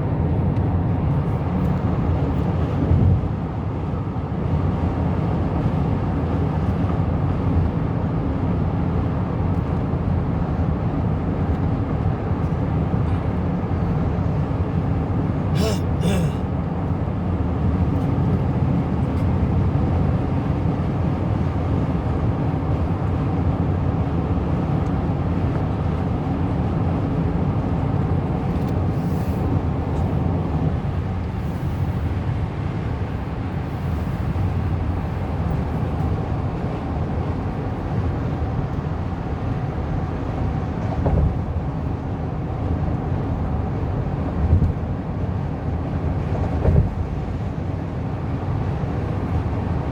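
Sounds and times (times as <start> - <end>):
car road and engine rumble: 0.0 - 49.9.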